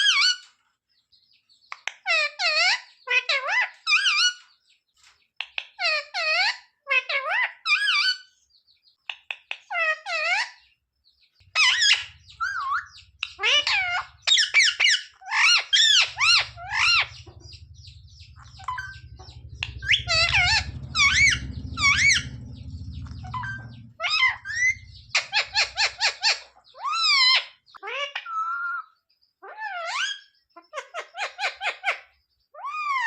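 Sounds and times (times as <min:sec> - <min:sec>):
parakeet squawking: 0:11.5 - 0:28.8.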